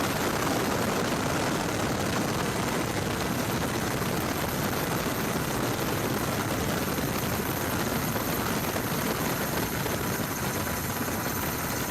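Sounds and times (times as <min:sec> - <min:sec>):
aircraft engine noise: 0:00.0 - 0:11.9.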